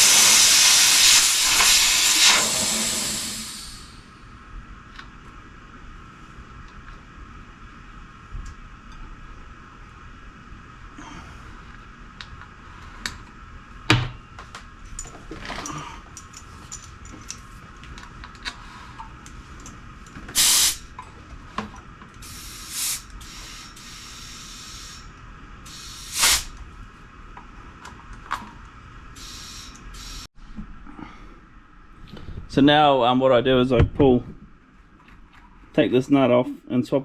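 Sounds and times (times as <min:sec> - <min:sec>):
air hissing through valve: 0:00.0 - 0:04.2, 0:20.4 - 0:20.9, 0:22.2 - 0:26.6, 0:29.2 - 0:30.3.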